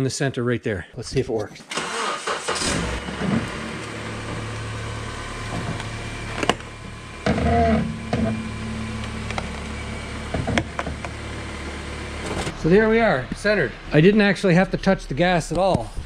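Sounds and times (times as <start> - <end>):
car engine idling: 1.8 - 16.0
tire squeak: 2.5 - 14.1.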